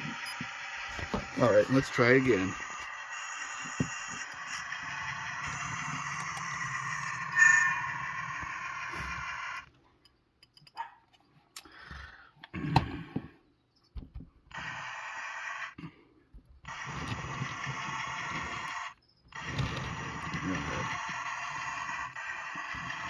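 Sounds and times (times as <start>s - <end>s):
model train running: 0.0s - 9.7s, 14.5s - 15.8s, 16.7s - 23.0s.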